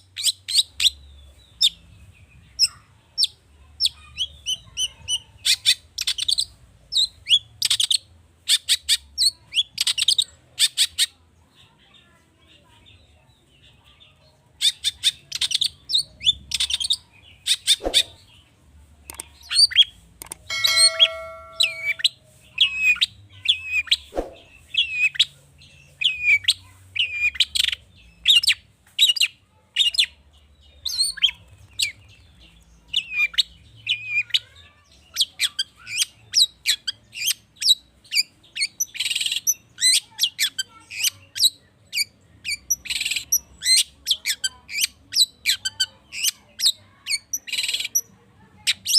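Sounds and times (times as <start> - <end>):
bird singing sharp high notes: 20.5 - 22.1.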